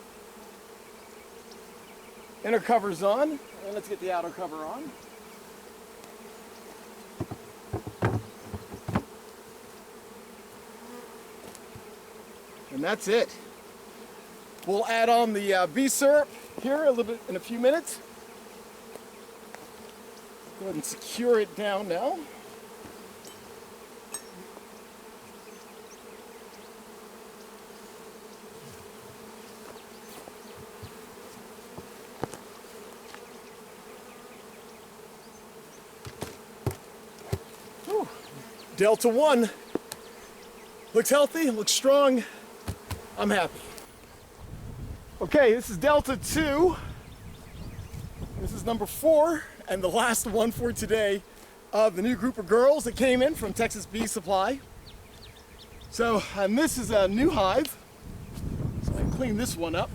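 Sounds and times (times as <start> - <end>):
bees buzzing: 0.0 - 59.9
wooden knocks of hive cover: 6.0 - 9.4, 28.6 - 33.4, 36.0 - 38.6, 39.6 - 40.1, 42.5 - 43.9
hive being handled clicks: 39.7 - 40.2, 42.6 - 44.1.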